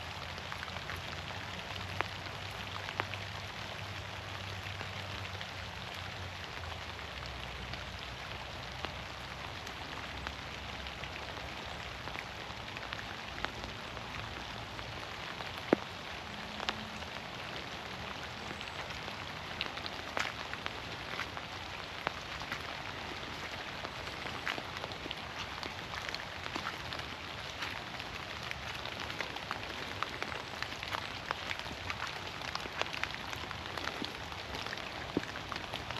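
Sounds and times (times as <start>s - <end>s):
rain hissing through trees: 0.0s - 35.9s.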